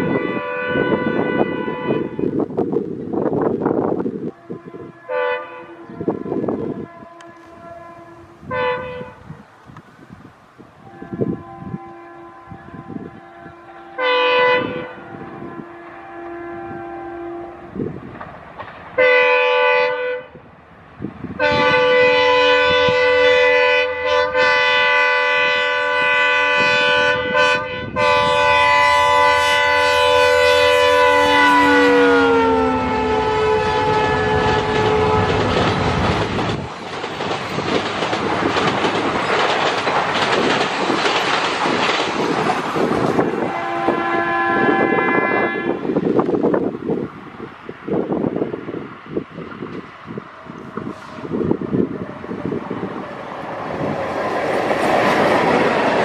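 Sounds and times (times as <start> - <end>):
locomotive air horn blasts: 0.0 - 2.4, 4.3 - 9.4, 10.8 - 18.0, 19.0 - 20.4, 21.4 - 36.0, 43.2 - 46.2
train horn: 0.0 - 2.4, 4.2 - 9.4, 10.8 - 18.0, 19.0 - 20.4, 21.4 - 36.4, 43.2 - 46.6, 50.5 - 53.2
train coaches clattering over rail joints: 34.2 - 44.2.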